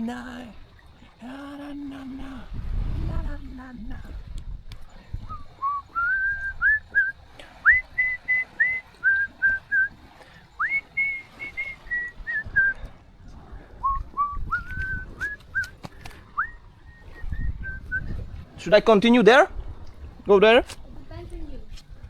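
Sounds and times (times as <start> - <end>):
person whistling a tune: 5.2 - 10.0, 10.6 - 12.8, 13.8 - 15.8, 16.4 - 18.2.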